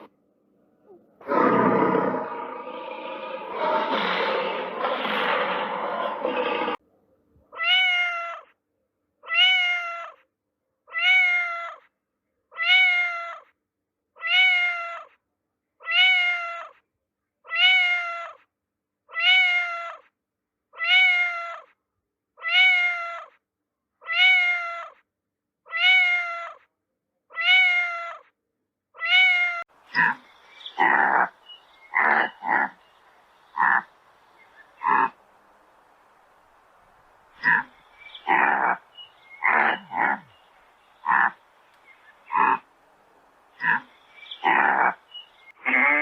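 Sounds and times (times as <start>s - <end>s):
cat meowing: 7.5s - 8.6s, 9.2s - 10.2s, 10.9s - 11.9s, 12.5s - 13.5s, 14.2s - 15.2s, 15.8s - 16.8s, 17.5s - 18.5s, 19.1s - 20.1s, 20.8s - 21.8s, 22.4s - 23.4s, 24.0s - 25.0s, 25.7s - 26.7s, 27.3s - 28.3s, 29.0s - 29.7s.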